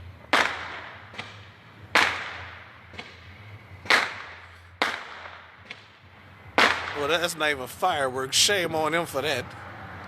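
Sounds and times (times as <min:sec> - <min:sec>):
sharp echoing bangs: 0:00.2 - 0:07.6.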